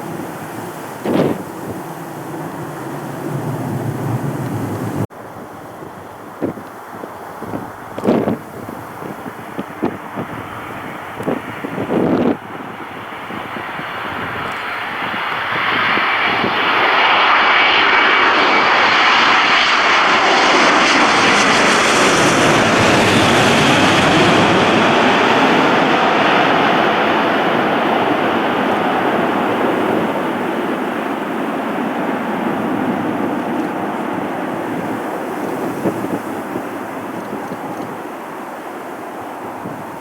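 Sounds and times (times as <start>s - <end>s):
jet engines roaring: 0.0s - 40.0s.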